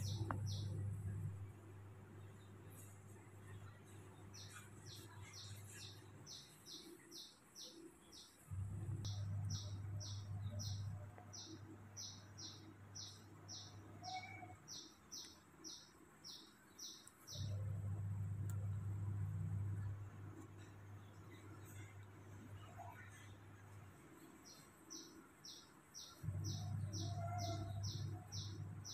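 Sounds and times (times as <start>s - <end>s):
bird chirping: 0.0s - 1.4s, 2.2s - 17.8s, 24.2s - 28.9s
low steady hum: 0.0s - 28.9s.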